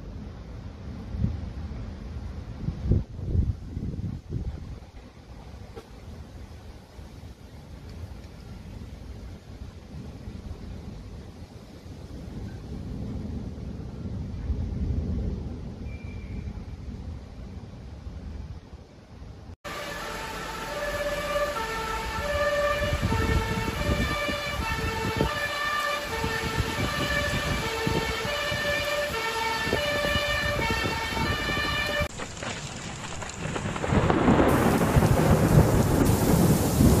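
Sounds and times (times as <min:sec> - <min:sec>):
heavy rain: 0:00.0 - 0:15.9, 0:19.6 - 0:37.0
rumbling storm: 0:00.0 - 0:37.0
two-tone emergency siren: 0:19.6 - 0:32.1.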